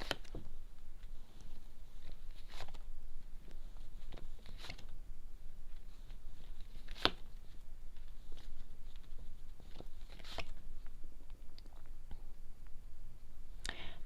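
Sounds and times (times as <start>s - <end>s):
cards being shuffled: 0.0s - 5.0s, 5.7s - 10.7s.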